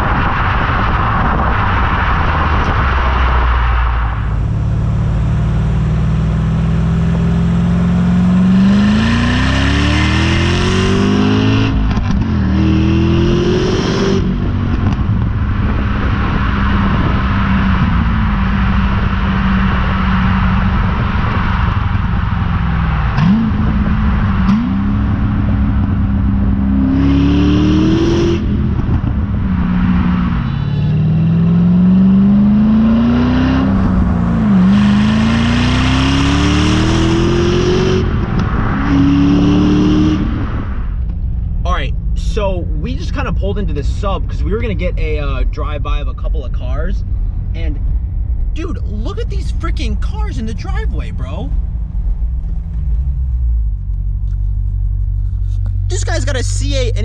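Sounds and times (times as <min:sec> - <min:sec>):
car engine revving through gears: 0:04.6 - 0:40.8.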